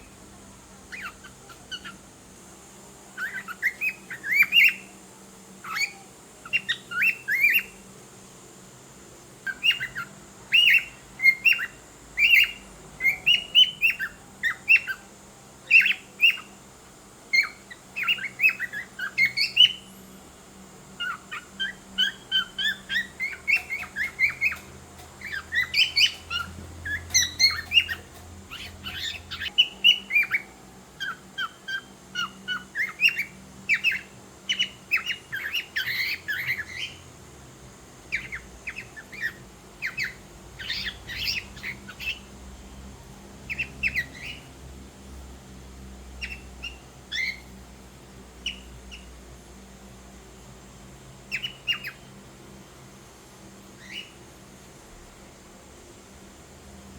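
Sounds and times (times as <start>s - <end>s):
cockatiel chirping and whistling: 0.9s - 2.0s, 3.2s - 4.9s, 9.4s - 15.0s, 17.4s - 19.9s, 21.0s - 37.0s, 38.1s - 42.3s, 43.5s - 44.5s, 46.2s - 47.4s, 51.3s - 52.0s, 53.8s - 54.2s.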